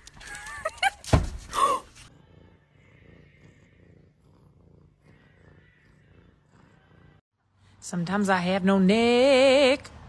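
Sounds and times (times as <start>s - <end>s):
cat purring faintly: 2.1s - 7.2s.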